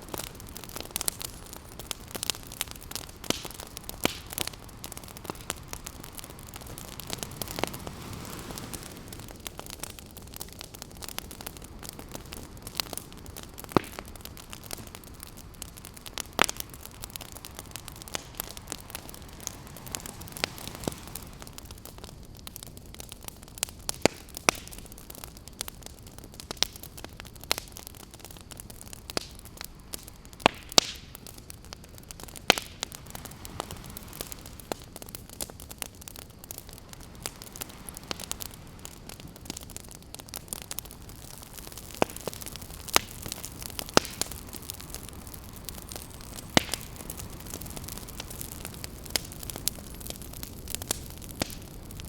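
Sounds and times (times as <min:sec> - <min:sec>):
campfire crackling and popping: 0:00.0 - 0:52.0
ocean surf: 0:03.4 - 0:09.9, 0:14.5 - 0:21.8, 0:33.0 - 0:34.8, 0:36.8 - 0:39.1.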